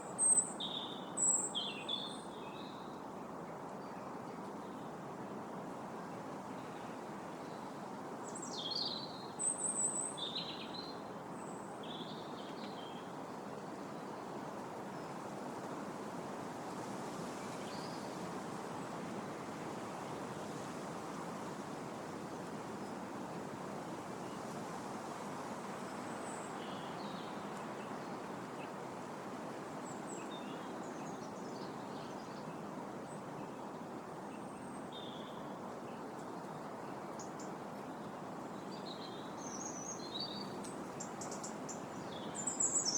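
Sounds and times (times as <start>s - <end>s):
wind blowing through trees: 0.0s - 42.9s.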